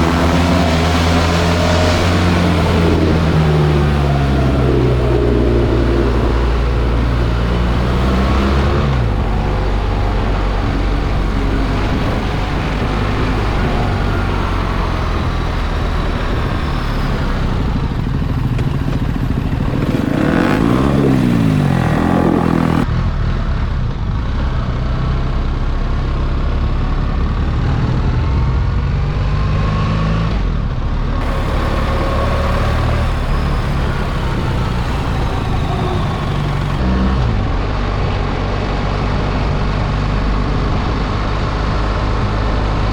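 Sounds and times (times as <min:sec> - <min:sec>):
motorcycle engine running: 0:00.0 - 0:22.9, 0:31.2 - 0:36.8
vehicle passing by: 0:00.0 - 0:22.9, 0:31.2 - 0:37.4
wind and road noise: 0:00.0 - 0:42.9.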